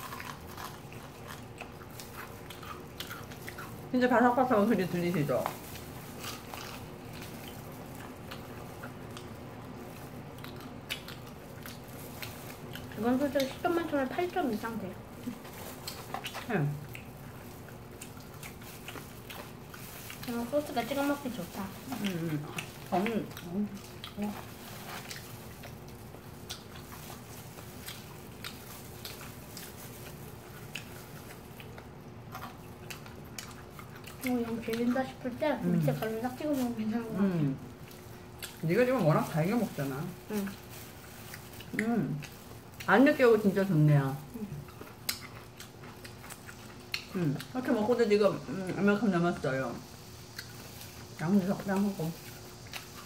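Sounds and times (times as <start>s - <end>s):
people chewing crispy chicken: 0.0s - 53.0s
fried chicken crunching when bitten: 44.6s - 47.5s.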